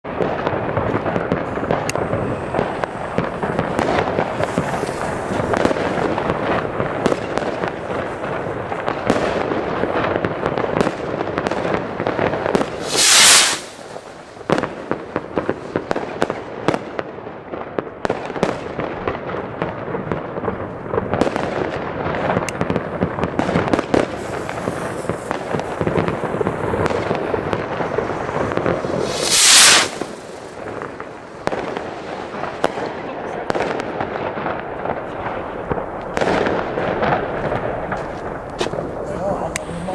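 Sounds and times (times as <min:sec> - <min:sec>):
fireworks rockets crackling launches: 0:00.1 - 0:39.9
hissing firework burst: 0:00.2 - 0:16.4, 0:22.2 - 0:33.0.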